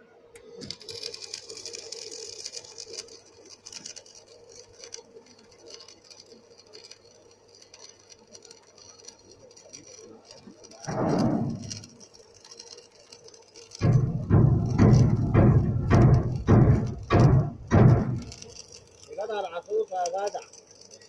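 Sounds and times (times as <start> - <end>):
welding arc crackling: 0.3 - 21.0
steady low hum: 13.8 - 18.5.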